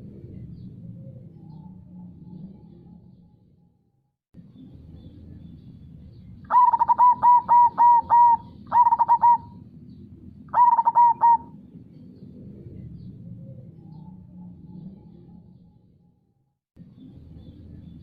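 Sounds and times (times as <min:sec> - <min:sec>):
dove cooing: 0:06.5 - 0:09.7, 0:10.5 - 0:11.6.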